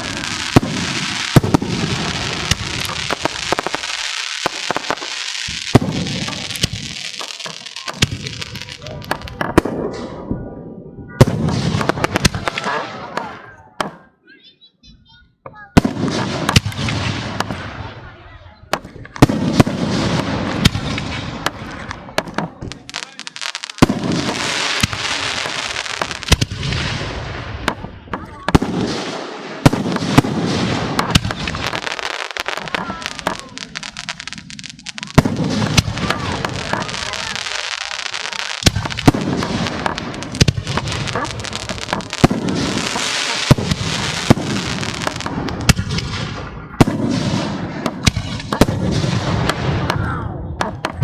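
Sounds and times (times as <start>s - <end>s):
fireworks crackling hiss: 0.0s - 9.4s, 19.2s - 27.8s, 28.4s - 49.7s
fireworks shells bursting: 0.0s - 9.6s, 18.8s - 49.7s.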